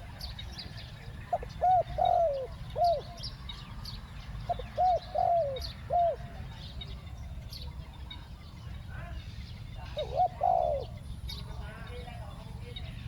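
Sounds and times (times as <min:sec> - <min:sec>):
dove cooing: 0:00.0 - 0:03.3, 0:04.5 - 0:06.5, 0:09.8 - 0:11.0
small birds chirping faintly: 0:00.0 - 0:13.0.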